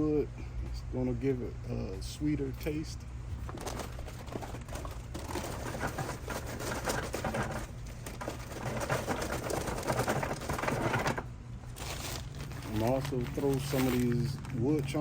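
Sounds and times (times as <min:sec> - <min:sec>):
charcoal pouring into metal hopper: 0:03.5 - 0:15.0.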